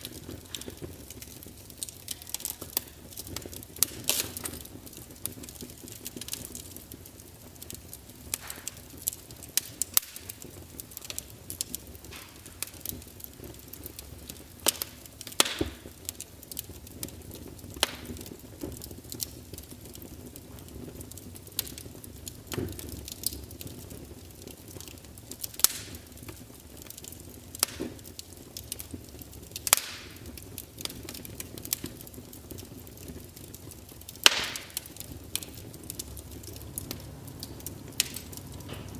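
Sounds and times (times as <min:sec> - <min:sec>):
burning wood crackling and popping: 0:00.0 - 0:38.9
low rustle of flames: 0:00.0 - 0:38.9.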